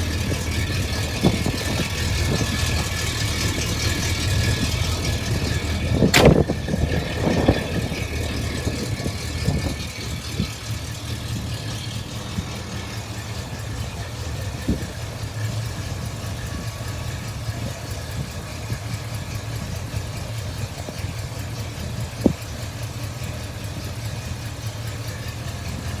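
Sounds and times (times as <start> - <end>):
car engine idling: 0.0 - 26.0
exhaust pop: 0.1 - 16.6.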